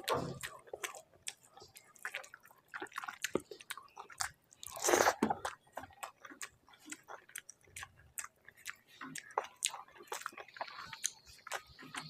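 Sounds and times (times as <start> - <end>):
close chewing: 0.0 - 12.0
wet mouth clicks and smacks: 0.0 - 12.0.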